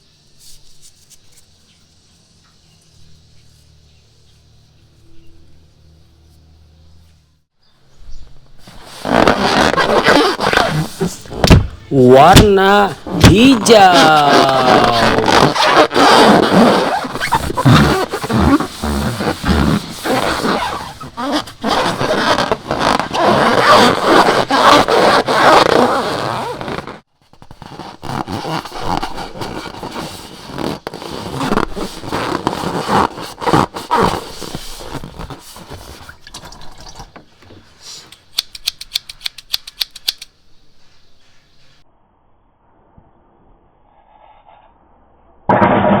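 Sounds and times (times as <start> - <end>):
sharp little clicks: 38.1 - 40.3.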